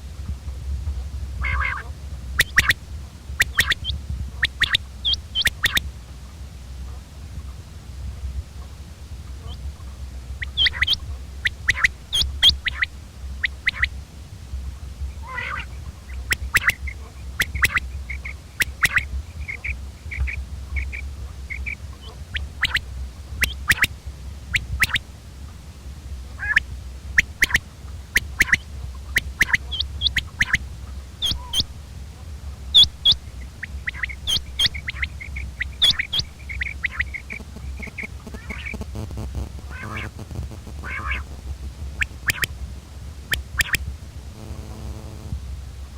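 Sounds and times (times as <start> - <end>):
low hum: 0.0 - 45.9
quail calling: 1.4 - 2.8, 3.4 - 5.9, 9.4 - 14.0, 15.1 - 25.1, 26.3 - 42.6, 43.3 - 44.7.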